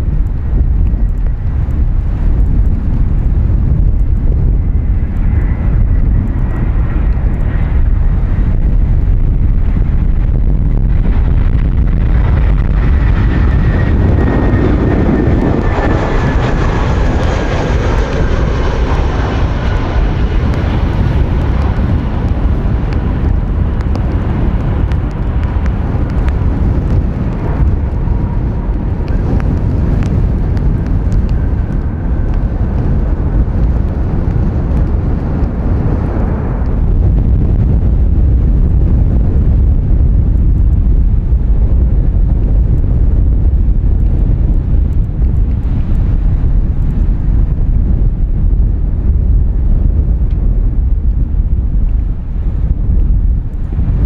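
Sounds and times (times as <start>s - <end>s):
wind noise on microphone: 0.0s - 54.0s
jet engines whining: 10.9s - 32.3s.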